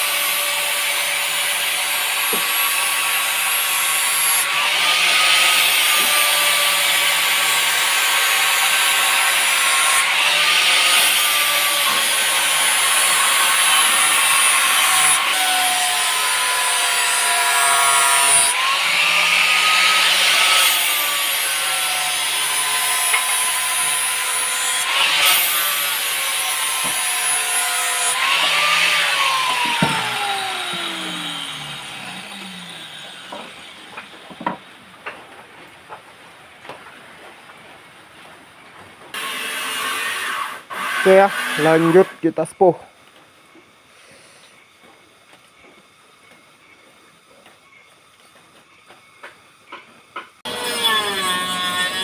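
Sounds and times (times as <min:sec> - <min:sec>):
electric grinder motor: 0:00.0 - 0:34.2, 0:50.4 - 0:52.0
grinder rasping on steel: 0:00.0 - 0:34.2, 0:39.2 - 0:42.5, 0:50.4 - 0:52.0.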